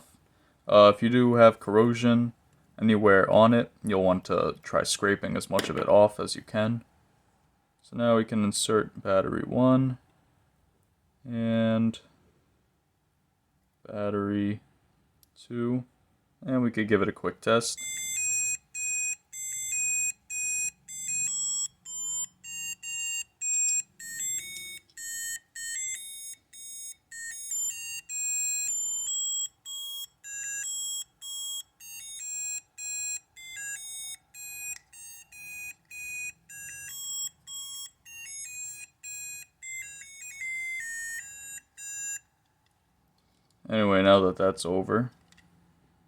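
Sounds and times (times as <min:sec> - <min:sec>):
toy electronic beeping tune: 0:17.8 - 0:42.3.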